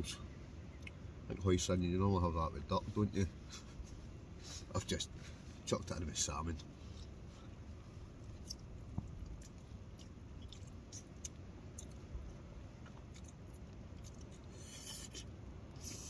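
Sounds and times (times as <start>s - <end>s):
soft low rumble: 0.0s - 16.0s
person chewing noodles: 8.1s - 12.1s, 12.7s - 16.0s
short hissing rustle: 14.5s - 16.0s.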